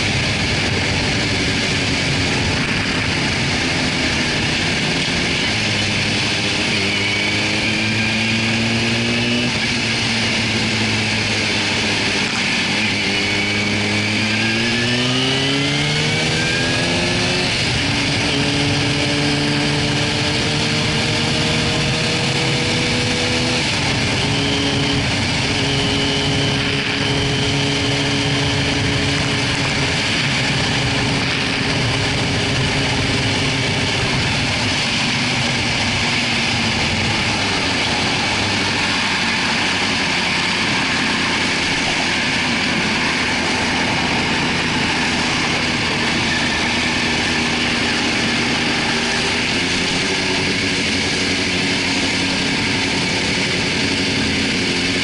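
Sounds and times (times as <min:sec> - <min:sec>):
motorcycle engine: 0:00.0 - 0:55.0
wind noise: 0:00.0 - 0:55.0.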